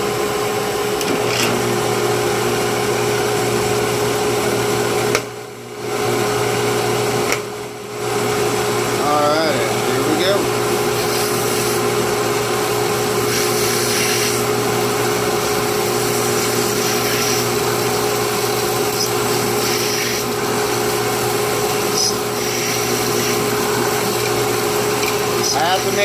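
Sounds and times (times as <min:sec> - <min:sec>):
electric drill boring: 0:08.8 - 0:26.0.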